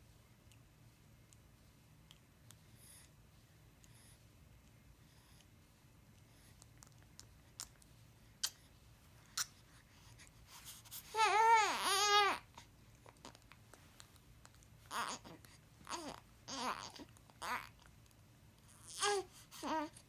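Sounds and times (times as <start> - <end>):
baby babbling: 11.2 - 12.4, 14.9 - 17.8, 18.8 - 20.0.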